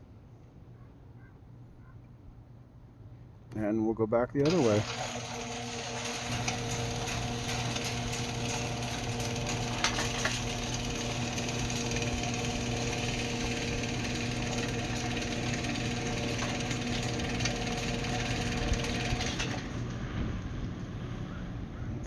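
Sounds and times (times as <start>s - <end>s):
gate opener motor humming: 4.4s - 20.8s.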